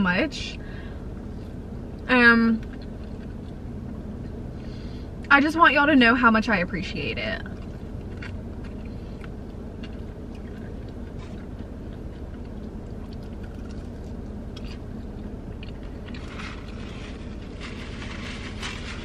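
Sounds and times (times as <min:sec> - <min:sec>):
steady low hum: 0:00.0 - 0:19.0
chewing and biting food: 0:02.6 - 0:04.4, 0:07.4 - 0:16.9.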